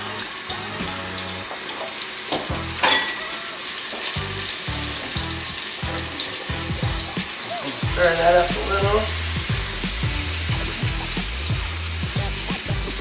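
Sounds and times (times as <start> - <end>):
garlic sizzling in oil: 0.0 - 13.0
background music with low beat: 4.2 - 13.0.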